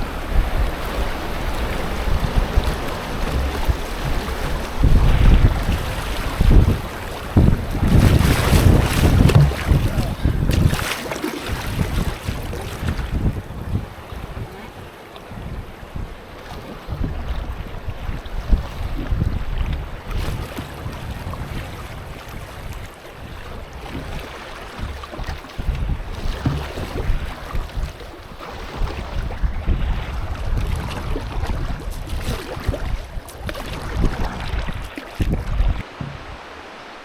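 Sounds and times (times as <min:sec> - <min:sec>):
river water rushing: 0:00.0 - 0:13.0, 0:34.4 - 0:37.0
wind buffeting microphone: 0:00.0 - 0:36.7.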